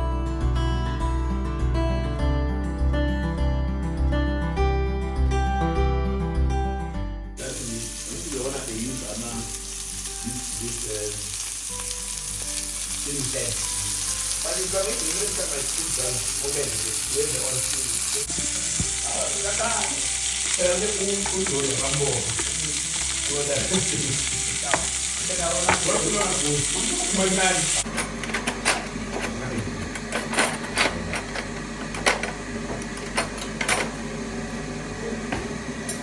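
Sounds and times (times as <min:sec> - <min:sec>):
food sizzling in a pot: 0:07.4 - 0:36.0.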